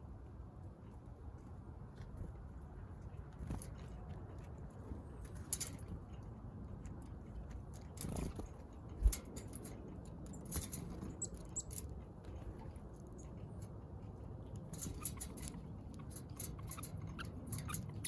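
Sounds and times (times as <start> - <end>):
birds pecking: 0.1 - 18.0
wing flutters: 8.0 - 9.6.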